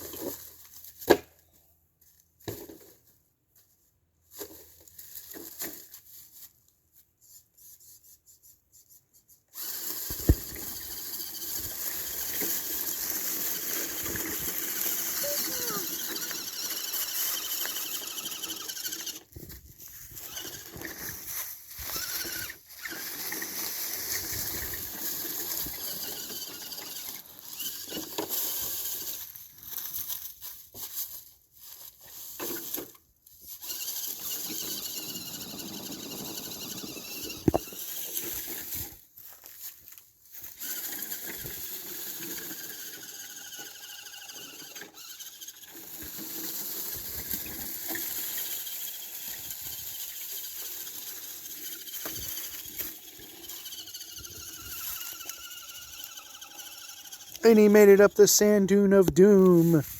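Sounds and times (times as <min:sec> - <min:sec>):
toy car motor whining: 0:09.5 - 0:30.2, 0:32.4 - 0:39.0, 0:40.4 - 0:58.6.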